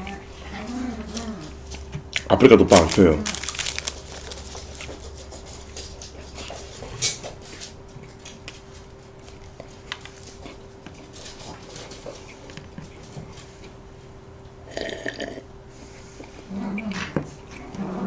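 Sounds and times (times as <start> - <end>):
faint steady hum: 0.0 - 18.0
chewing and mouth sounds: 0.9 - 7.1.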